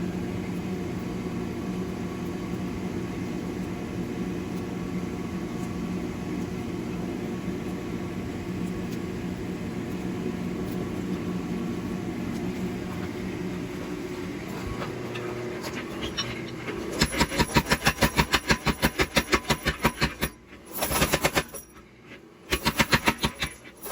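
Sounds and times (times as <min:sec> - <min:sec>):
shop machinery hum: 0:00.0 - 0:23.9
power hammer pounding steel: 0:15.8 - 0:21.8, 0:22.5 - 0:23.9.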